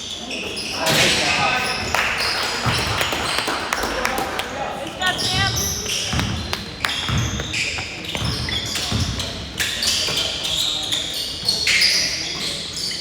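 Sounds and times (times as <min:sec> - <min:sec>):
sneaker squeaks: 0:00.0 - 0:03.9, 0:04.9 - 0:13.0
voices shouting: 0:04.5 - 0:06.1.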